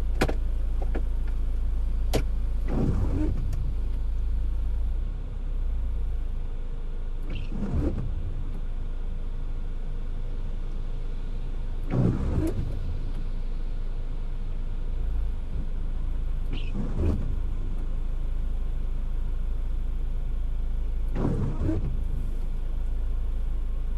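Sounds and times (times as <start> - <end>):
windshield wiper sweeping: 0.0 - 6.2, 7.2 - 9.5, 11.0 - 13.6, 15.0 - 18.1, 21.1 - 23.5
car road and engine rumble: 0.0 - 23.9.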